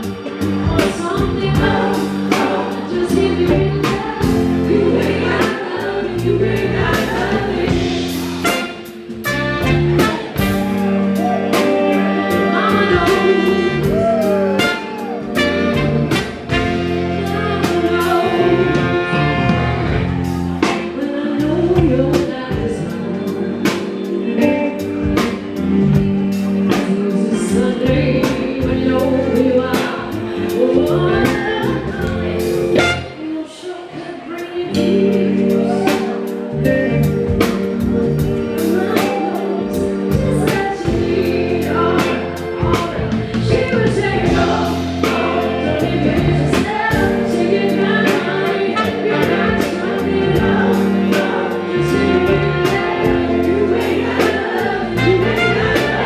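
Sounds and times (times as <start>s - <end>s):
live band playing: 0.0s - 56.0s
person singing: 0.0s - 56.0s
drum beat: 6.9s - 18.3s.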